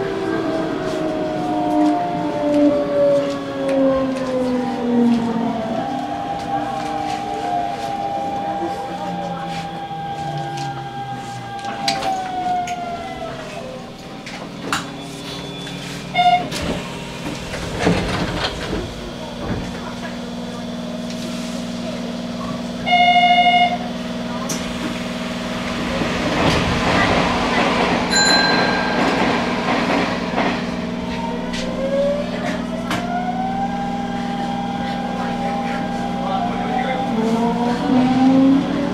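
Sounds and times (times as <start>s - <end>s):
electric train rumbling: 0.0s - 38.9s
train motor whine: 2.6s - 19.8s.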